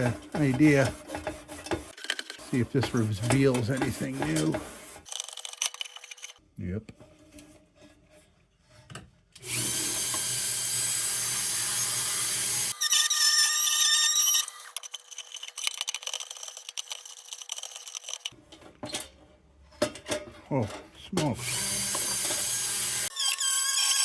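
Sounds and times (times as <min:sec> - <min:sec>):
light scraping and clicking: 0:00.0 - 0:07.5
electric power tool whining: 0:09.4 - 0:15.0, 0:21.4 - 0:24.0.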